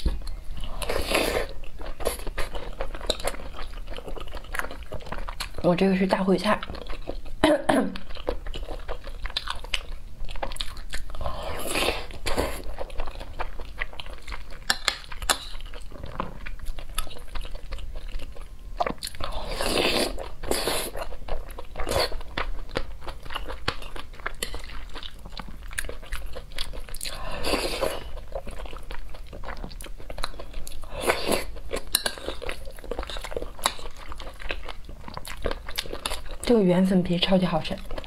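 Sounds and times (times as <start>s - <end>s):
person chewing food: 0.0s - 5.7s, 6.5s - 36.5s.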